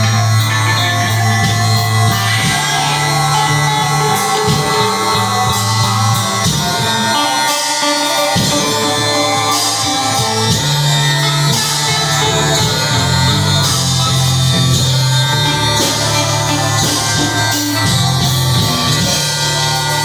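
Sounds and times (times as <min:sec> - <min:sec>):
live improvised music: 0:00.0 - 0:20.0
sustained low bass notes: 0:00.0 - 0:20.0.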